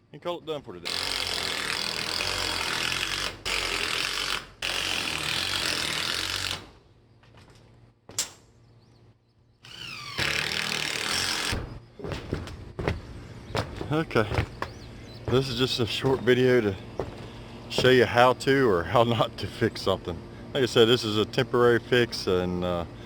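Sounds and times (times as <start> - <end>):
power drill driving screws: 0.9 - 6.7, 9.6 - 11.6.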